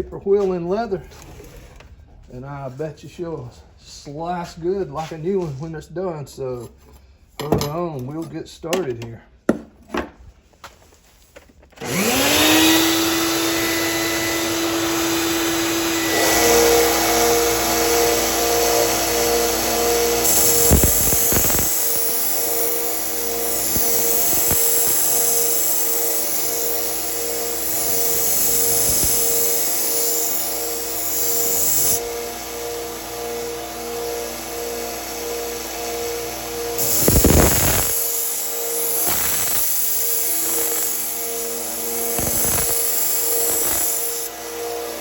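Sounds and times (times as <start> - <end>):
belt sander motor humming: 11.8 - 45.0
belt grinding steel blade: 20.2 - 32.3, 36.7 - 45.0.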